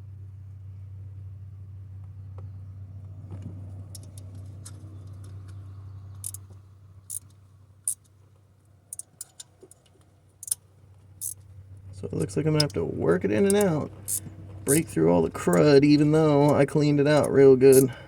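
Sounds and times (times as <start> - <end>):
steady low hum: 0.0 - 18.0
metallic clicks of hand tool: 6.2 - 6.4, 8.9 - 10.6, 11.2 - 11.4, 13.5 - 14.2, 17.2 - 18.0.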